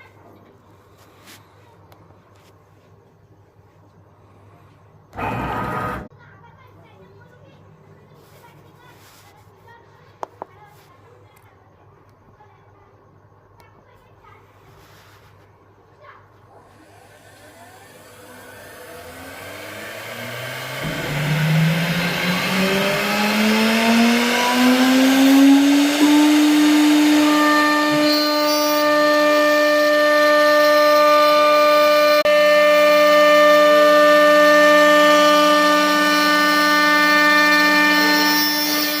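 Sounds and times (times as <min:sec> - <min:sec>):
router spindle motor whine: 0:05.1 - 0:06.1, 0:16.7 - 0:39.0.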